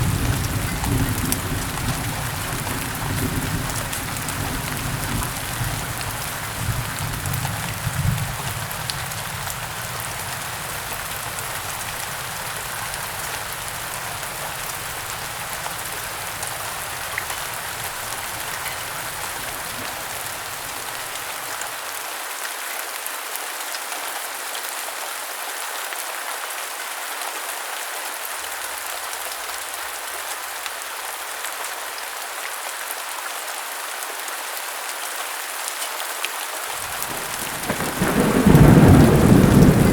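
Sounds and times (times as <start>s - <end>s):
low thunder rumble: 0.0s - 21.1s, 36.8s - 39.9s
heavy rain falling: 0.0s - 23.6s, 36.6s - 39.9s.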